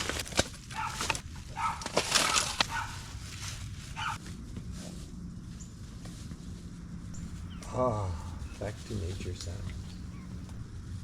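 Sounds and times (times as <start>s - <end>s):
dog barking: 0.7s - 3.0s, 4.0s - 4.2s.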